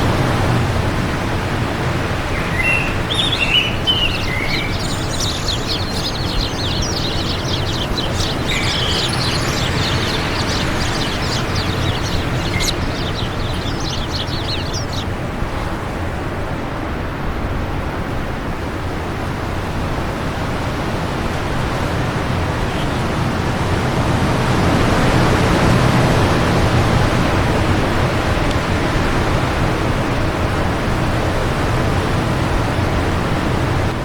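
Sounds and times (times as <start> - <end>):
wind rushing: 2.1 - 15.3
bird chirping rapidly: 2.3 - 15.1.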